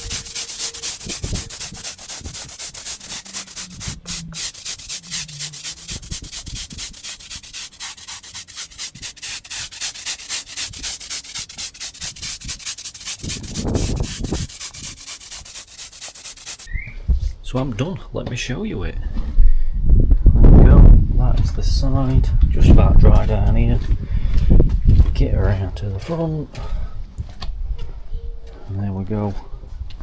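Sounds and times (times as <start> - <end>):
brush scraping sand on bricks: 0.0 - 16.7.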